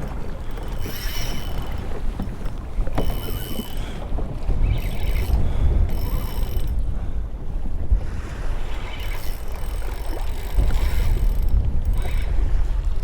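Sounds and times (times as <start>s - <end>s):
wind buffeting microphone: 0.0s - 13.0s
fishing reel buzzing: 0.7s - 1.9s, 3.0s - 3.8s, 4.7s - 6.7s, 8.7s - 12.4s.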